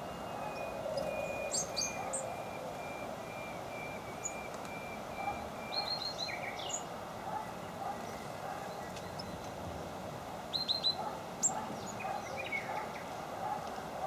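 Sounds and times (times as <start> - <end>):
small birds calling: 0.0 - 9.6, 10.5 - 14.0
steady background noise: 0.0 - 14.0.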